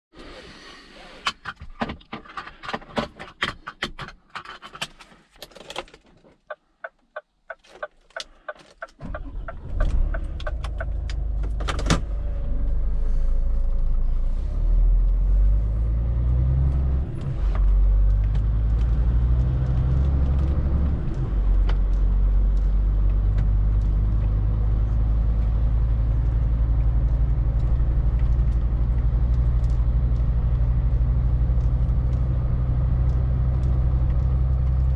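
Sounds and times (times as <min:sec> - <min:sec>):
diesel lorry engine starting: 0:08.2 - 0:34.9.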